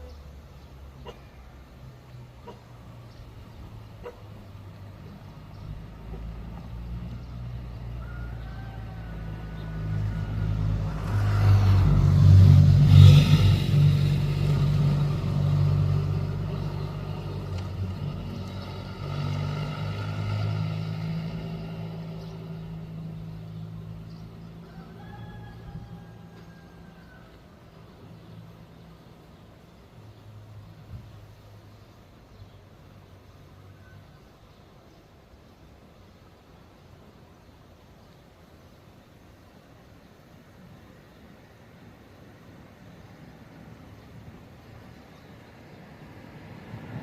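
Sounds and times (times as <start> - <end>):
vehicle engine passing: 1.7 - 29.3, 43.4 - 47.0.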